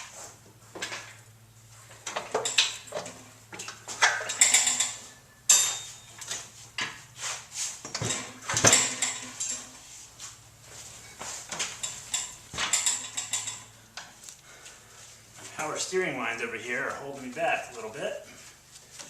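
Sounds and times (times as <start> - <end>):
metal clanks and scrapes: 1.9 - 10.1, 10.8 - 13.8.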